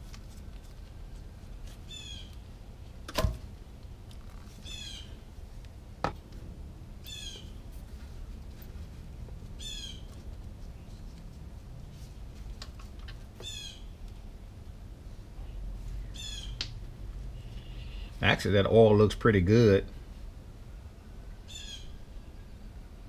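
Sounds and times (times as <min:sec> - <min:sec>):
harsh squawking calls: 0:04.6 - 0:05.2, 0:16.1 - 0:16.6.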